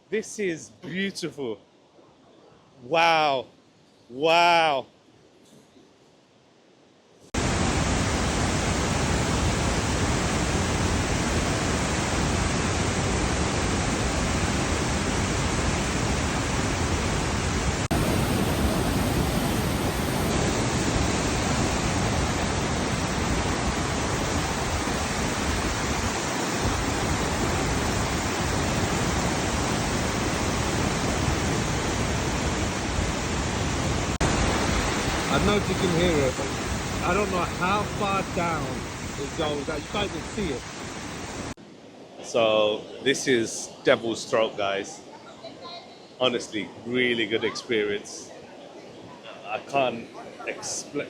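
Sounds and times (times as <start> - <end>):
waterfall rushing: 7.4 - 41.6.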